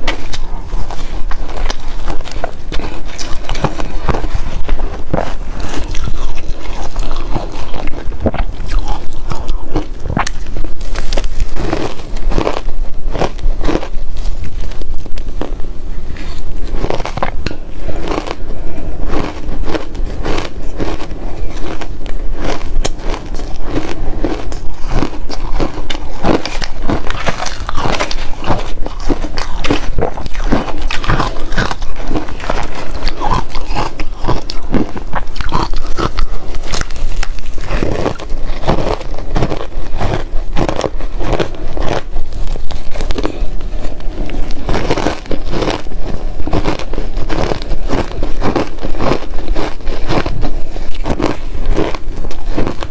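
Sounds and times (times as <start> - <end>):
crunching frozen ice: 0.0 - 15.6, 16.2 - 52.9.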